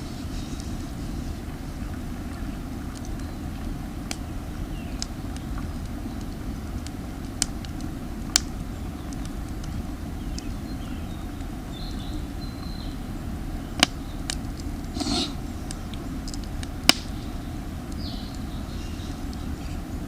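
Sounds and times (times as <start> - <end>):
low rumble of fire: 0.0 - 20.0
campfire pops: 1.4 - 12.8, 13.4 - 19.6
faint bird chirps: 10.2 - 14.3
short hiss of fire: 14.9 - 15.5.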